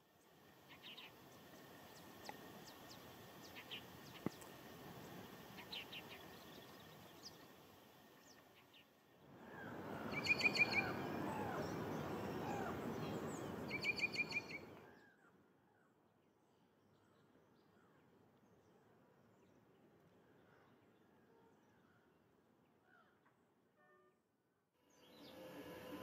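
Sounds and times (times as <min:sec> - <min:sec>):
steady background noise: 0:00.0 - 0:14.9
birds chirping: 0:00.6 - 0:14.9.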